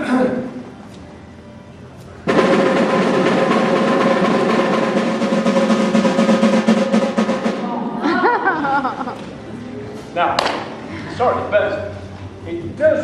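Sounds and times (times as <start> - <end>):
drum roll: 2.2 - 9.0.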